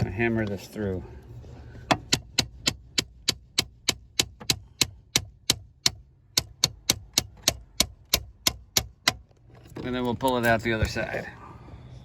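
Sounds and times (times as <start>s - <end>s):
hammer striking a bolt: 1.9s - 9.4s.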